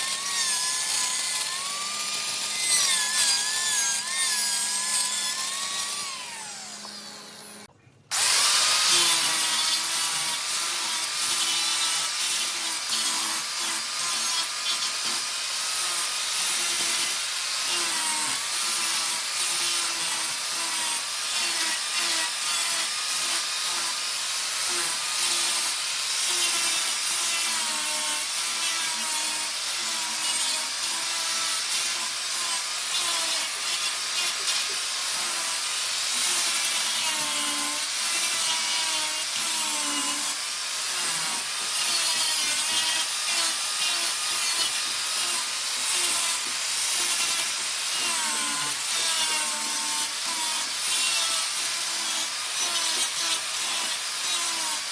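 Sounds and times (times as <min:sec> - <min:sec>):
wood lathe tool rasping: 0:00.0 - 0:24.0.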